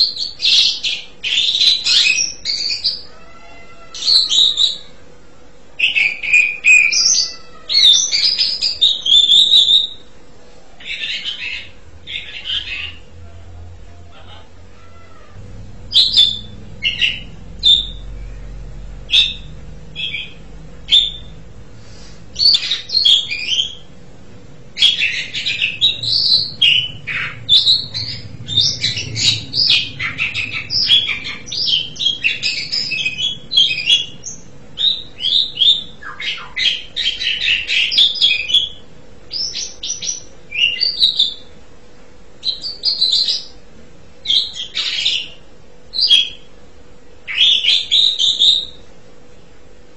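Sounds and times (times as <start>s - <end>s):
starling singing: 0.0s - 4.9s, 10.8s - 41.5s.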